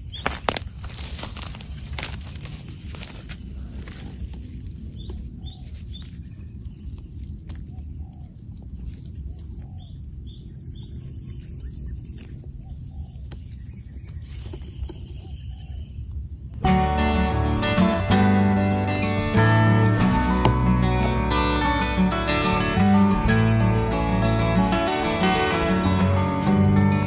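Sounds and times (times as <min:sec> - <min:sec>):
small birds chirping: 0:00.0 - 0:00.6, 0:02.6 - 0:16.3
gloved hands rustling dry leaves: 0:00.0 - 0:05.0.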